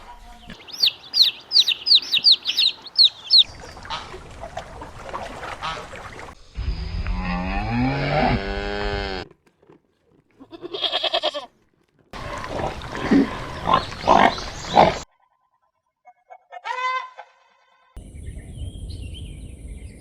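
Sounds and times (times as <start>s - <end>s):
farm animal calls: 0.2s - 4.2s, 12.2s - 15.0s
animal grunting: 7.2s - 9.3s, 12.2s - 15.0s.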